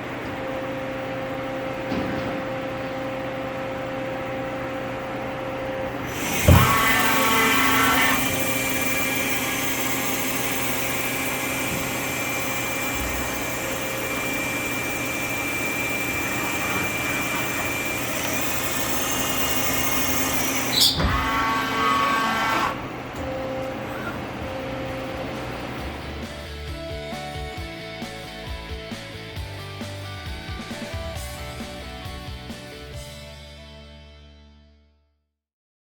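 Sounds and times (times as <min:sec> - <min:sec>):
lathe whirring and humming: 0:00.0 - 0:27.6
sharp machine clack: 0:06.1 - 0:22.8.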